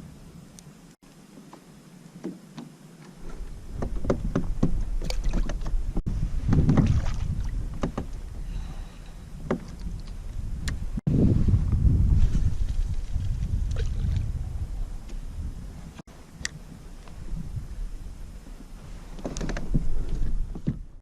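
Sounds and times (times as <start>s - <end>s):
water: 0.0s - 11.0s, 12.6s - 15.2s
wind rumble on microphone: 3.2s - 21.0s.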